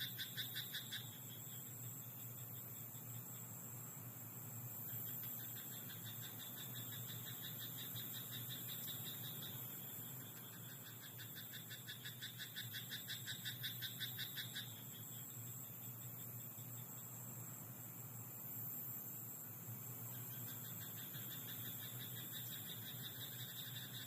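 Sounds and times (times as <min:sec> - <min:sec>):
frog croaking: 0:00.0 - 0:01.6, 0:04.9 - 0:14.9, 0:20.2 - 0:24.0
steady high hiss: 0:00.0 - 0:24.0.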